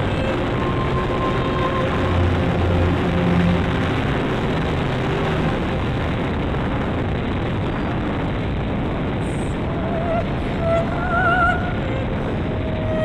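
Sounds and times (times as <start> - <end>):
wind rushing: 0.0 - 13.0.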